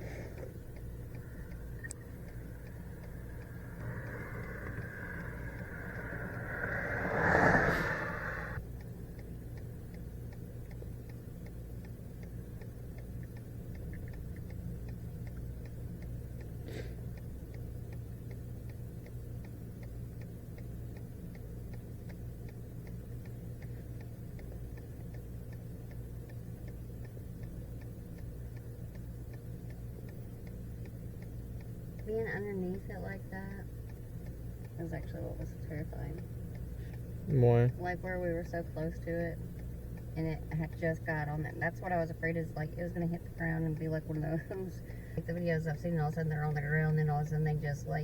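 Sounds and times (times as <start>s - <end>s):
faint regular ticking: 0.0s - 48.0s
road and engine hum: 0.0s - 48.0s
rushing noise: 1.0s - 8.6s.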